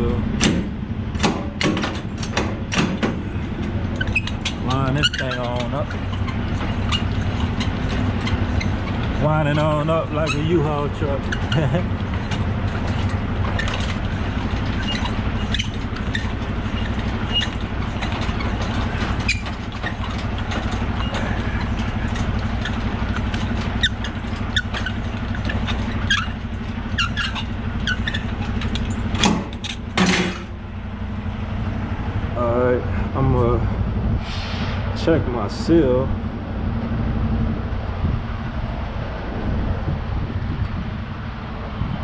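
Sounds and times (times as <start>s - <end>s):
diesel truck engine idling: 0.0s - 42.0s
clicks and knocks: 0.4s - 4.6s.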